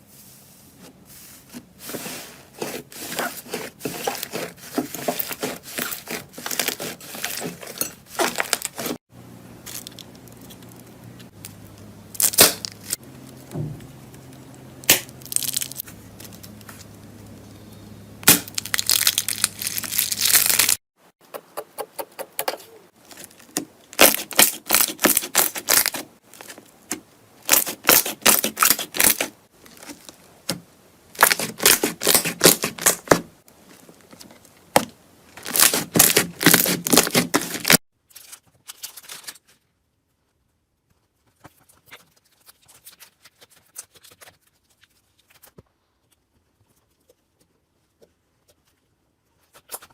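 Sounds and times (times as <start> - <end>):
slime crackling and popping: 18.2 - 20.8.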